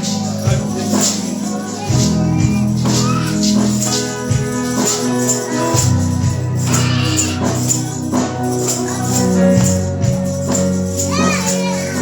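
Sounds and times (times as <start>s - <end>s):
congregation singing: 0.0s - 12.0s
keyboard and bass chords: 0.0s - 12.0s
tambourine shaken: 0.0s - 12.0s.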